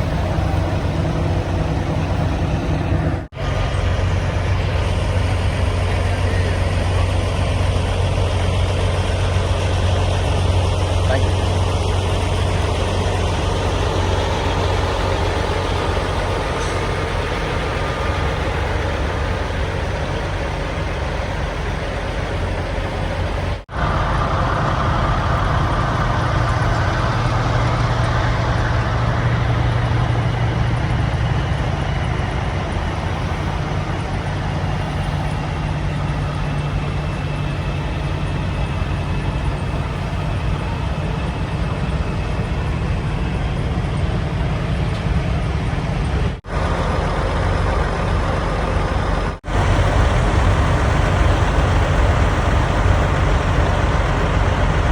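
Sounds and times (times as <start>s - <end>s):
truck diesel engine running: 0.0s - 54.9s.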